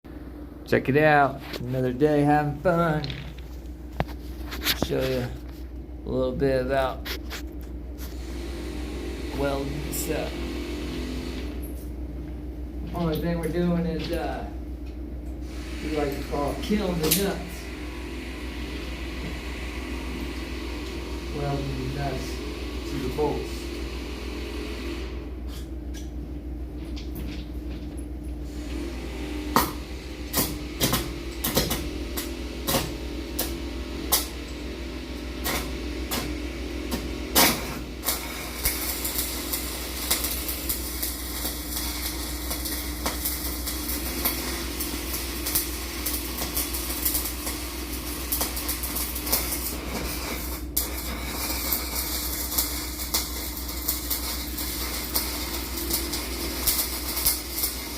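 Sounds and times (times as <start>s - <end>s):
machine hum: 0.1s - 57.9s
welding arc crackle: 6.6s - 11.8s, 15.4s - 25.6s, 28.5s - 57.9s.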